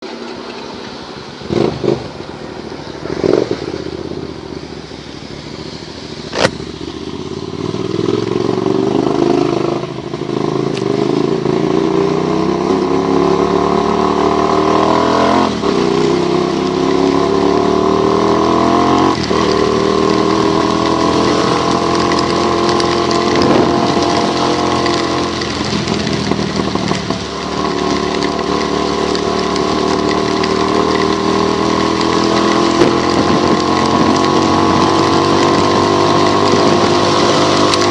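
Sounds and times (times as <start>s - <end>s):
motorcycle engine accelerating: 1.2s - 37.9s.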